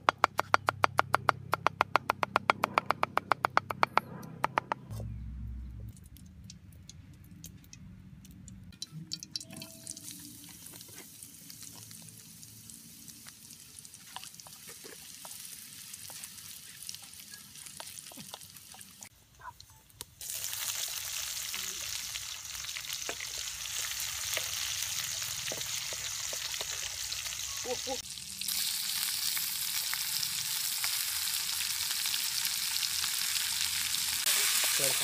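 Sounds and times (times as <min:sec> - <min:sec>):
oil hissing and crackling: 0:06.0 - 0:19.1, 0:20.0 - 0:35.0
aromatics sizzling in wok: 0:08.8 - 0:19.1, 0:20.2 - 0:35.0.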